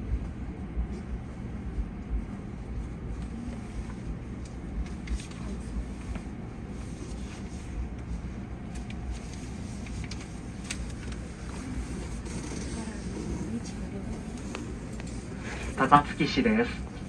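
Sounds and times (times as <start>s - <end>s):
electric train rumbling: 10.9s - 17.0s.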